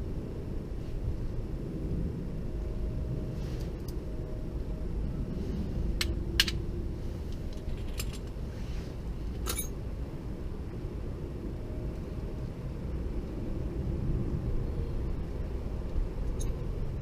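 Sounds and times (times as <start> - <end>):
steady low rumble: 0.0 - 17.0
metallic clicks and clinks: 7.4 - 8.4, 9.4 - 9.8, 16.2 - 16.7.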